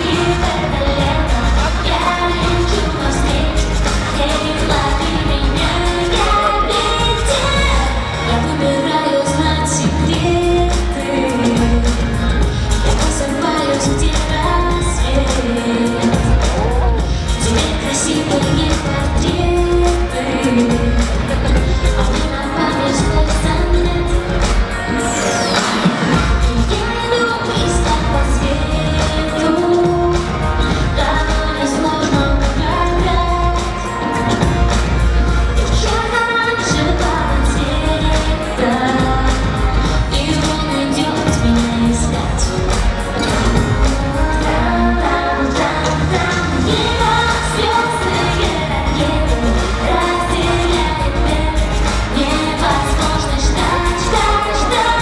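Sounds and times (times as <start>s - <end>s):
backing track with bass beat: 0.0s - 8.6s, 9.3s - 55.0s
woman singing: 0.0s - 55.0s.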